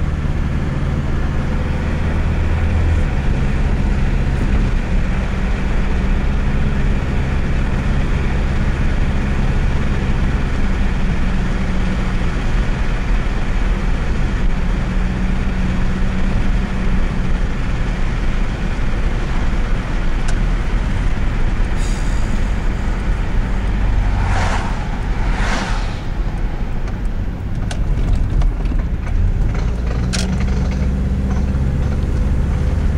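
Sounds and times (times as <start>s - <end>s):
car engine running: 0.0s - 32.9s
road and drivetrain noise: 0.0s - 32.9s
noise when turning: 18.5s - 32.6s
short rushes of noise: 21.8s - 27.5s.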